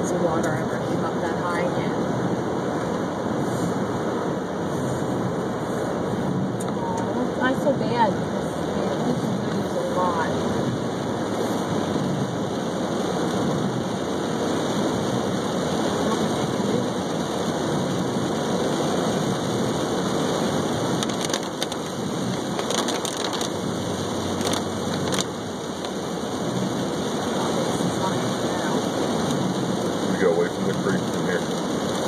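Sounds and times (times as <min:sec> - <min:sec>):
short crackles: 0:21.0 - 0:23.6.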